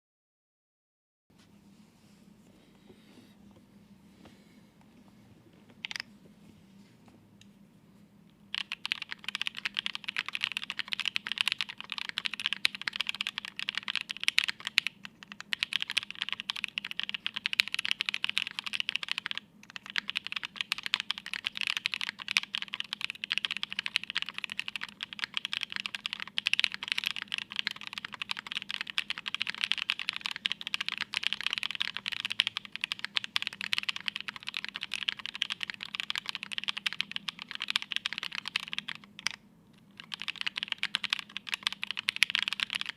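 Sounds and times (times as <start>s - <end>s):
fast typing on mechanical keyboard: 5.8s - 6.0s, 8.5s - 39.4s, 40.0s - 42.9s.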